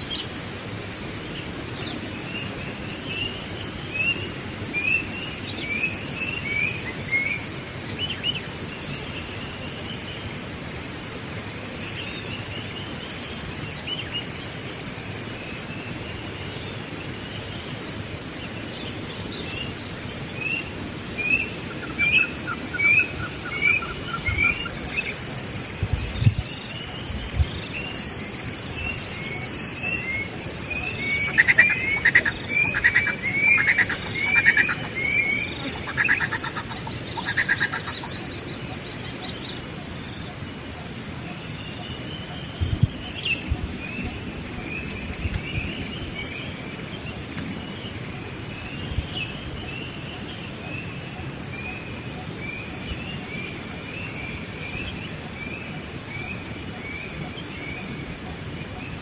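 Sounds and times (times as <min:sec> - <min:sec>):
insects droning: 0:00.0 - 0:59.0
birds chirping: 0:21.2 - 0:40.8.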